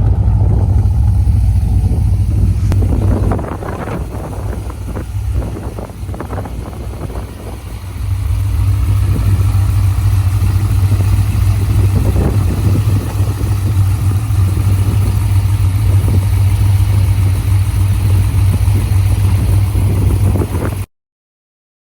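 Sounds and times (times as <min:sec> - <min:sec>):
car engine running: 0:00.0 - 0:20.9.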